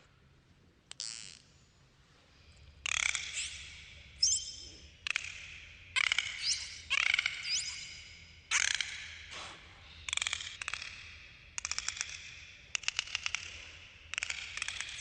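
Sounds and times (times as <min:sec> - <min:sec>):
dolphin whistles: 0:06.0 - 0:08.0
dolphin clicks and buzzing: 0:10.1 - 0:15.0.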